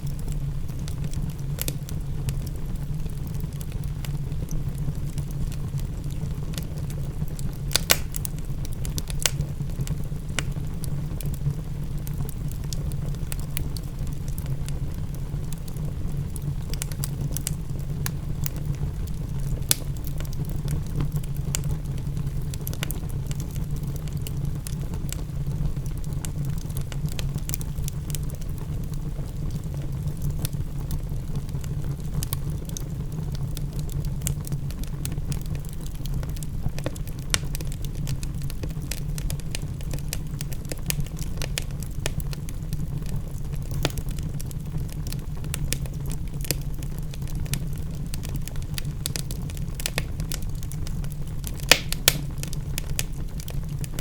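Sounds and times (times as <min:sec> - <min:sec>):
fireplace fire crackling: 0:00.0 - 0:54.0
low rumble of fire: 0:00.0 - 0:54.0
sharp pops of fire: 0:07.3 - 0:11.4, 0:16.7 - 0:20.4, 0:36.3 - 0:42.4, 0:47.4 - 0:54.0.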